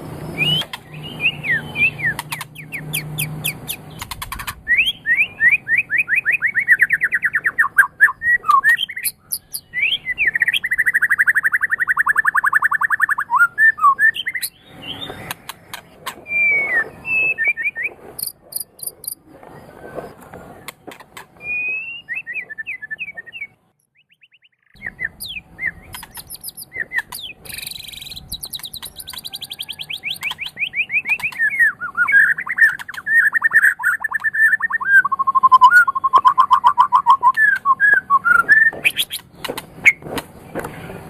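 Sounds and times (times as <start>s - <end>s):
rapid bird trills: 0.2s - 20.8s, 21.4s - 40.9s
bird singing whistled phrases: 0.3s - 3.8s, 4.6s - 15.2s, 16.2s - 18.9s, 21.4s - 39.2s.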